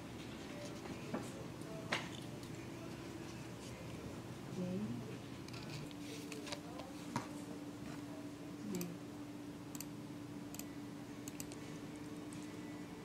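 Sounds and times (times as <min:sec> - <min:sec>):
steady low hum: 0:00.0 - 0:13.0
computer mouse clicks: 0:09.7 - 0:09.9, 0:10.5 - 0:11.6.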